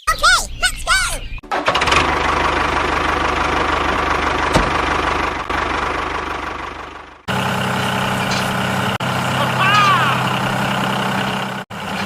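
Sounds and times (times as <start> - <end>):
engine idling: 1.5 - 12.0.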